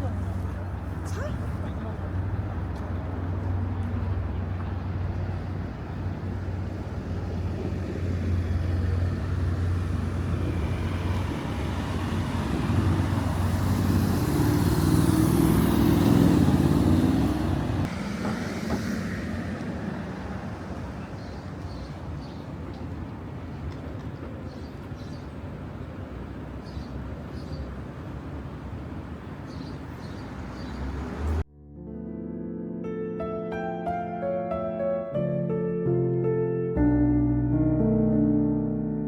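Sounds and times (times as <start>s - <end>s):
vehicle engine passing: 1.9s - 21.2s, 29.1s - 31.5s.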